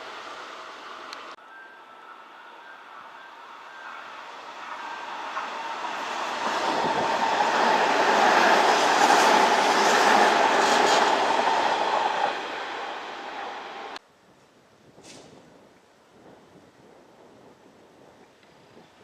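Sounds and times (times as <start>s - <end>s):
electric train running by: 0.0s - 14.0s.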